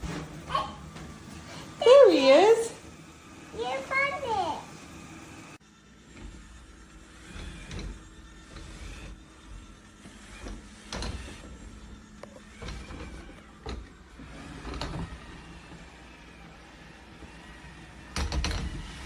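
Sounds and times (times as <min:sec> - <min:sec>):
robot vacuum motor hum: 0:00.0 - 0:19.0.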